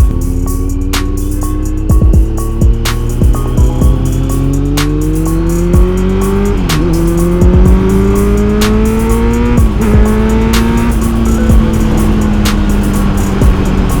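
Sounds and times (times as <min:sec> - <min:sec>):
motorcycle engine accelerating: 0:00.0 - 0:14.0
sharp click: 0:02.9 - 0:03.2, 0:04.7 - 0:05.6, 0:06.6 - 0:07.4, 0:10.5 - 0:11.4.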